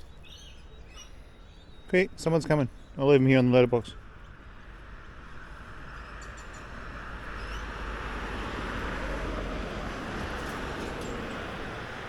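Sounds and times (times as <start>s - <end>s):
vehicle passing by: 4.5s - 12.0s.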